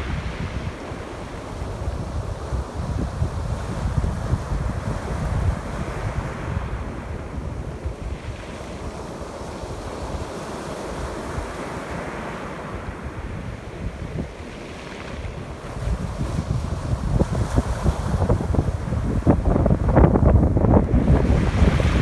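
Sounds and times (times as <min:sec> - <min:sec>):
ocean waves breaking: 0:00.0 - 0:03.8, 0:04.7 - 0:22.0
wind buffeting microphone: 0:00.0 - 0:10.4, 0:12.8 - 0:22.0.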